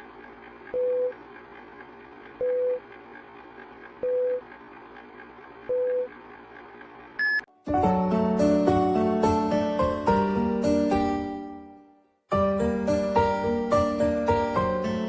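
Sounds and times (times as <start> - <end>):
short electronic beeps: 7.2 - 7.5
keyboard music: 7.5 - 15.0.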